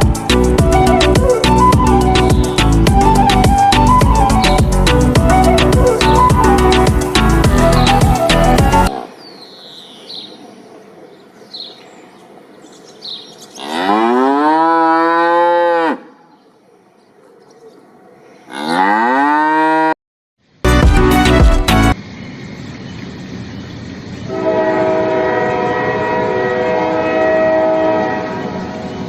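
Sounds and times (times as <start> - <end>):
loud music: 0.0 - 8.9, 20.7 - 22.0
cow mooing: 13.6 - 16.2, 18.5 - 20.0.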